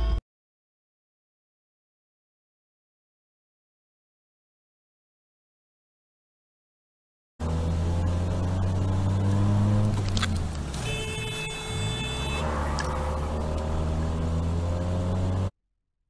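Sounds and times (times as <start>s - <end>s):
car engine and road noise: 7.4s - 15.6s.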